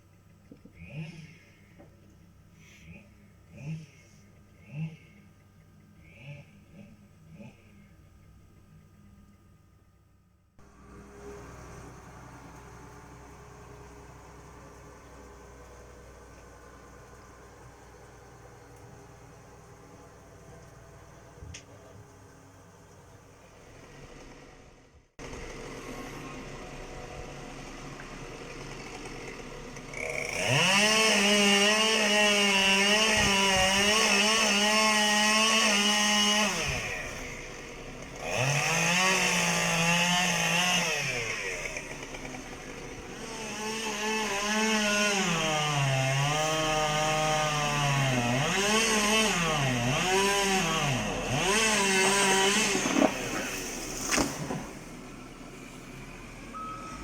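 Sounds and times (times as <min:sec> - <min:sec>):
chainsaw revving: 0:00.7 - 0:05.4, 0:06.0 - 0:08.1, 0:25.2 - 0:57.0.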